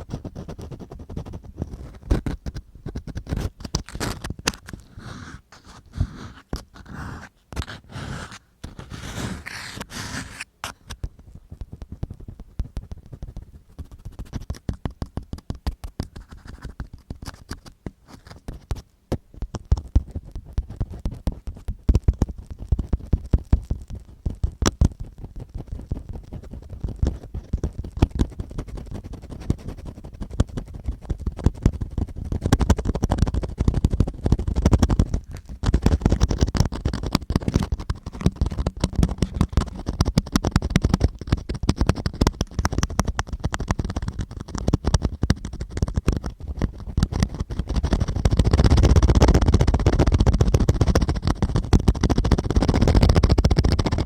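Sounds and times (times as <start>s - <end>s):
ear cleaning tool scratching mic: 0.0s - 15.0s, 19.7s - 54.0s
dense irregular clicks: 30.8s - 54.0s.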